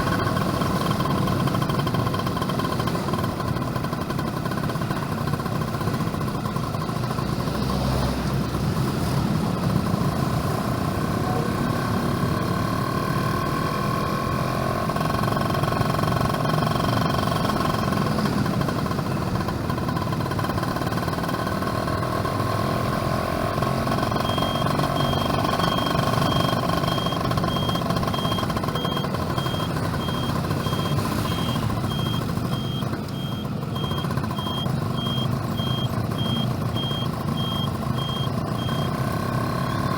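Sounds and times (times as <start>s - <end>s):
motorcycle engine running: 0.0s - 39.9s
high repeating beeping: 23.9s - 39.9s.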